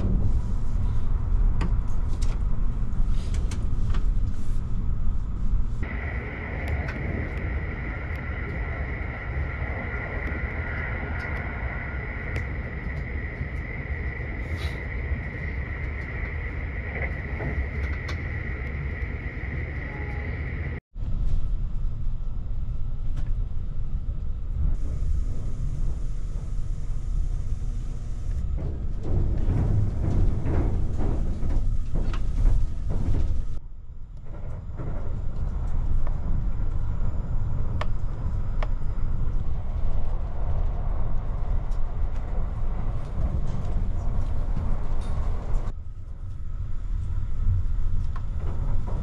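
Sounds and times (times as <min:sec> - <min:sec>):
train wheels rumbling on track: 0:00.0 - 0:04.5, 0:05.7 - 0:23.5, 0:24.2 - 0:33.6, 0:34.2 - 0:49.0
high whine: 0:05.7 - 0:23.2.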